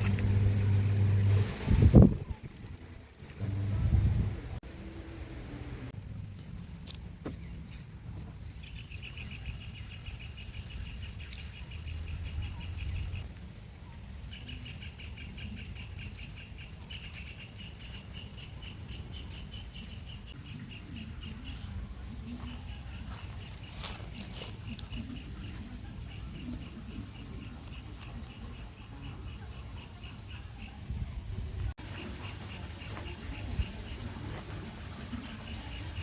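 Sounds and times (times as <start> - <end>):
strong wind buffeting microphone: 0.0 - 4.6.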